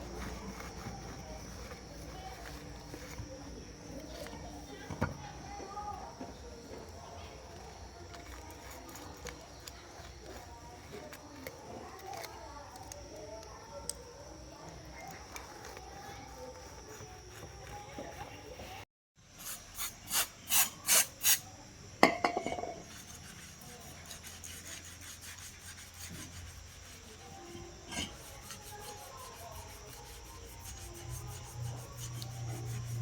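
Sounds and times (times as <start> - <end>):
file rasping on workpiece: 22.8 - 33.0.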